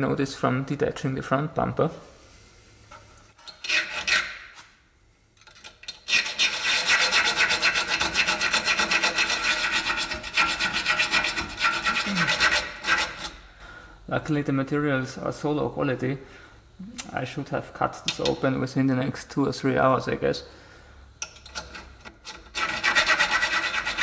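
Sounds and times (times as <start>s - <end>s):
hacksaw rasping through metal: 3.3s - 4.6s, 5.4s - 13.4s, 21.5s - 24.0s.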